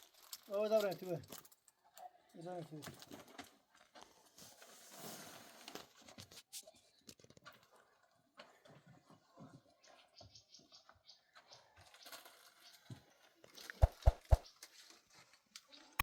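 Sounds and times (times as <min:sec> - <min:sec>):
faint rustling and scraping: 0:02.4 - 0:10.3, 0:11.2 - 0:15.8
sharp knocks: 0:13.8 - 0:14.4.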